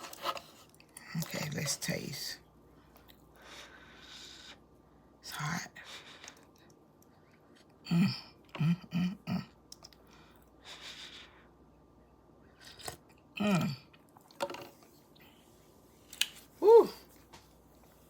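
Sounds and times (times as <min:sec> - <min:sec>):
person humming mm: 0:07.8 - 0:09.5, 0:13.4 - 0:13.9, 0:16.6 - 0:17.1.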